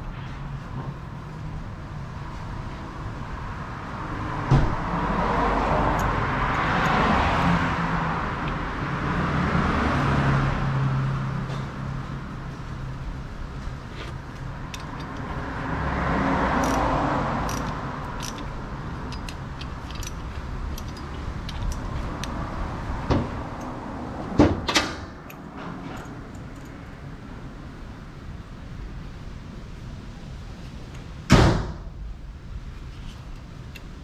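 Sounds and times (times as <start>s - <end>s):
light metallic clicks and clinks: 14.3s - 15.5s, 16.6s - 22.6s.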